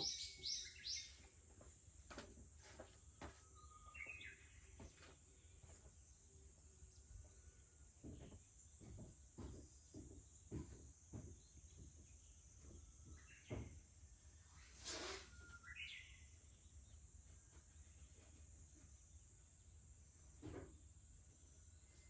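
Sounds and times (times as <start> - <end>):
cicadas droning: 0.0 - 1.8
brief hiss: 14.6 - 15.5.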